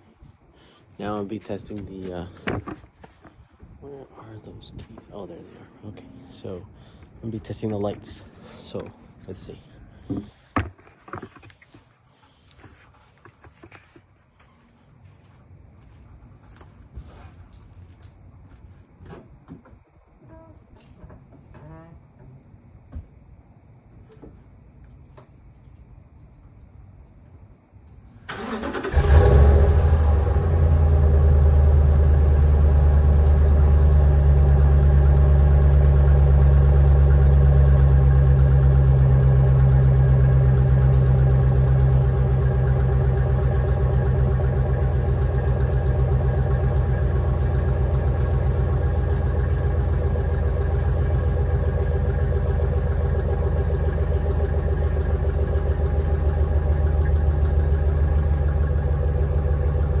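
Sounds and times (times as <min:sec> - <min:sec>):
truck engine starting and idling: 0:28.2 - 1:00.0.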